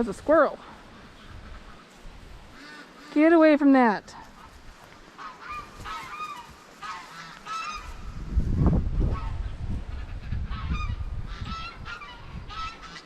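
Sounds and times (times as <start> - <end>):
wind buffeting microphone: 0.0 - 2.6, 7.6 - 13.0
geese honking: 0.3 - 3.6, 4.4 - 8.1, 10.0 - 13.0.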